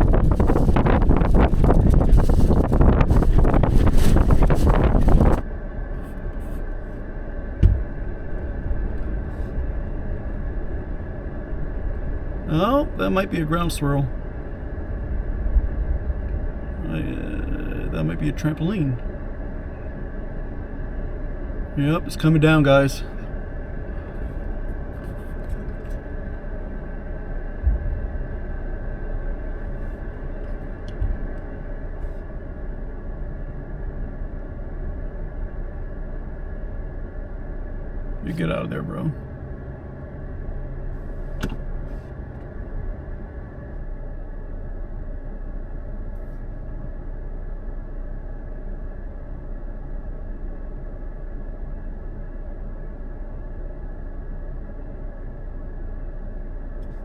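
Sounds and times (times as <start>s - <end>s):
wind buffeting microphone: 0.0s - 13.0s, 14.1s - 16.9s, 23.3s - 32.7s
vehicle cabin rumble: 0.0s - 57.0s
short low thumps: 7.5s - 10.6s, 27.5s - 28.7s
sharp thump: 7.6s - 7.9s.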